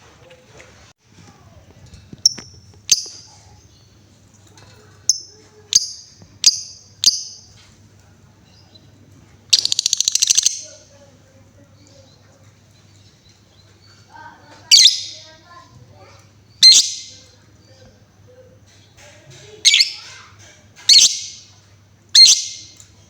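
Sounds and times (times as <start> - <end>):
lovebird rattling trill: 2.2 - 3.4, 5.1 - 7.5, 9.5 - 10.8, 20.9 - 21.4
lovebird chirping: 2.2 - 4.0, 5.0 - 7.6, 8.4 - 10.8, 12.8 - 15.4, 16.5 - 17.4, 19.6 - 20.1, 20.9 - 21.5, 22.2 - 22.8.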